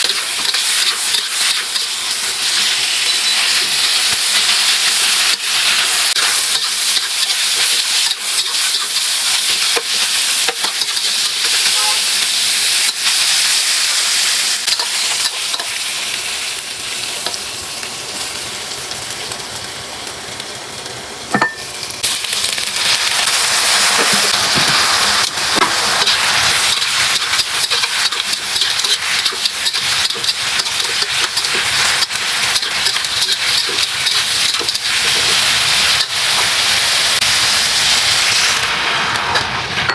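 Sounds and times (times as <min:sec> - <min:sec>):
food sizzling in a hot pan: 0:00.0 - 0:39.9.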